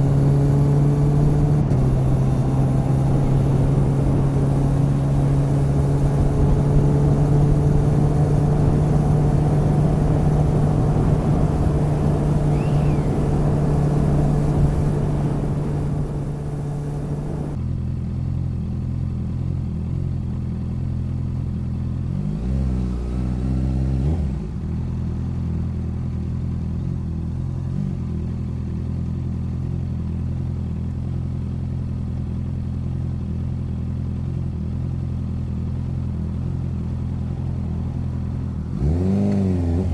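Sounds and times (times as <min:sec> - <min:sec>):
motorcycle engine: 0:00.0 - 0:39.9
wind noise: 0:00.9 - 0:17.6.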